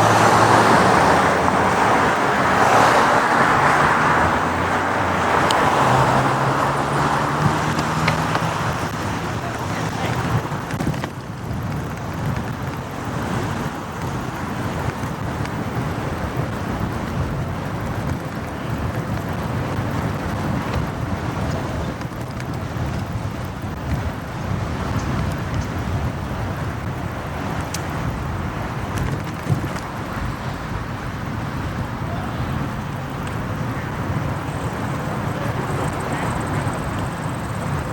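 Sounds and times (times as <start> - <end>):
motorcycle engine rumble: 0.0 - 37.9.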